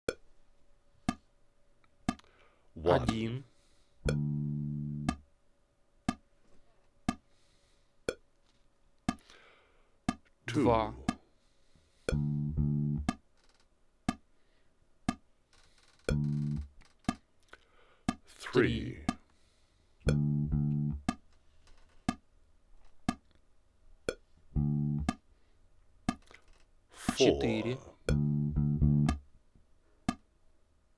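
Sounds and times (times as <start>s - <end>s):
bass guitar notes plucked: 4.0s - 5.2s, 12.1s - 13.2s, 16.1s - 16.7s, 20.0s - 21.2s, 24.5s - 25.2s, 27.1s - 29.2s
metronome clicking: 4.0s - 5.2s, 12.1s - 13.2s, 16.1s - 17.2s, 20.0s - 21.3s, 23.1s - 23.4s, 24.1s - 25.2s, 28.1s - 29.2s.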